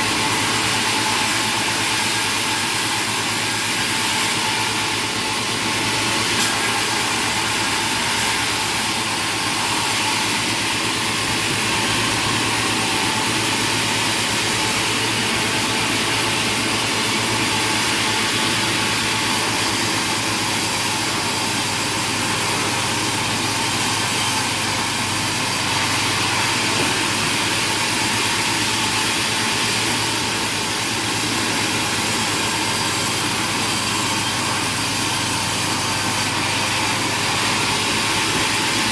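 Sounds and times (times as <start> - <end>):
sawmill machinery drone: 0.0 - 38.9.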